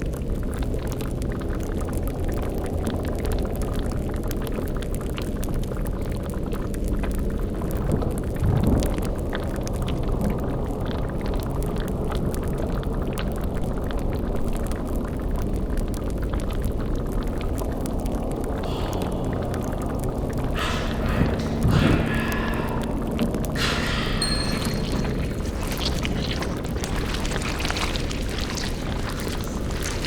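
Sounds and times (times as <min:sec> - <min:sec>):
boiling liquid bubbling: 0:00.0 - 0:30.0
low rumble: 0:17.7 - 0:30.0.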